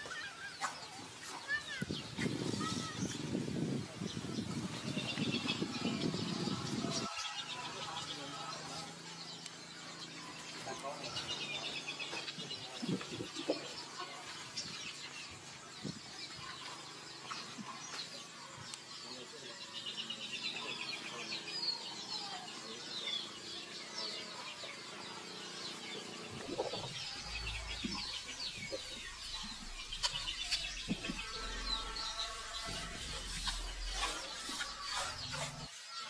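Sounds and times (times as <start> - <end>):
birds chirping: 0.0 - 36.0
low rumble: 26.4 - 34.4.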